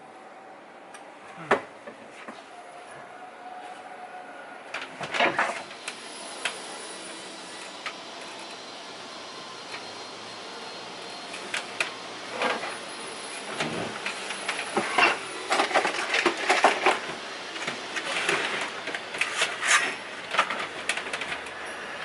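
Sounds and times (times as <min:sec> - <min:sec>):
steady hiss: 0:05.4 - 0:22.0.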